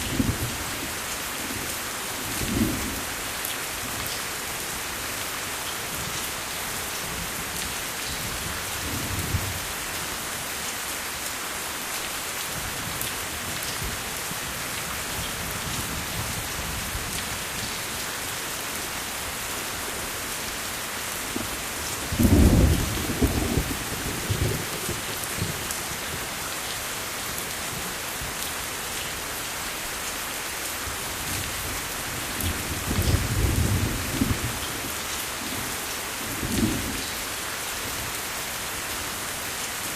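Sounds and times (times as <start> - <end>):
steady rain falling: 0.0 - 39.9
thunder rumbling: 22.1 - 25.6.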